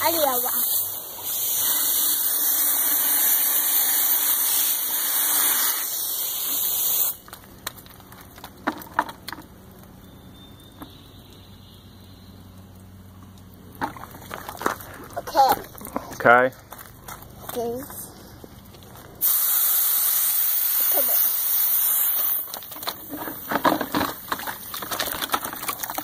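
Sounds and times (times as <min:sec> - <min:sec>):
water spraying from hose: 0:00.0 - 0:07.6, 0:19.2 - 0:26.0.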